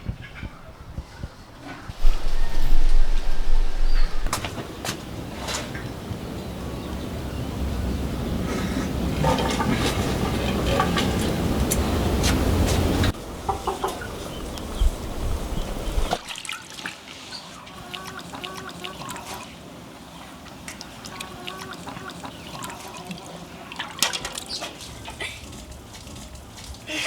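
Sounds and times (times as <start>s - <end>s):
chickens clucking softly: 0.1s - 4.8s, 8.0s - 16.2s, 17.4s - 25.2s
low machine rumble: 1.9s - 4.4s.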